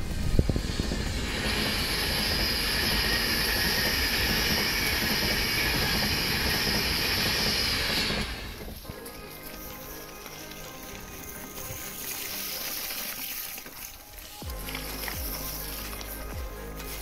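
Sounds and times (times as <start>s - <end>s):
train passing at speed: 0.0s - 13.1s.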